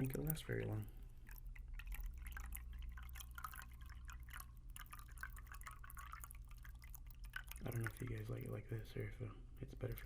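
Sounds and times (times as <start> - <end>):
water trickling into a cup: 0.0 - 10.0.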